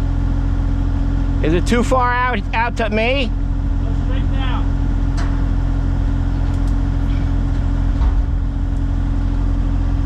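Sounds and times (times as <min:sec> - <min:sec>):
diesel engine running: 0:00.0 - 0:10.0
low thump: 0:07.9 - 0:08.5.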